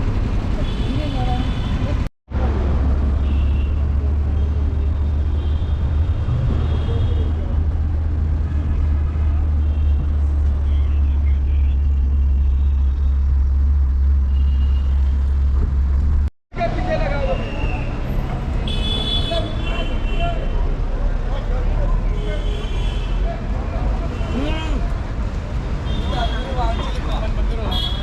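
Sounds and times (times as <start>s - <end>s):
road noise rumble inside car: 0.0s - 16.8s.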